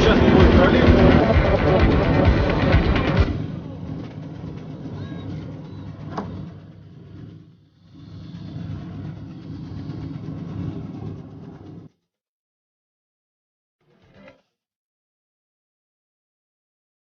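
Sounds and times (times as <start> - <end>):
moving vehicle rumble: 0.0 - 12.0.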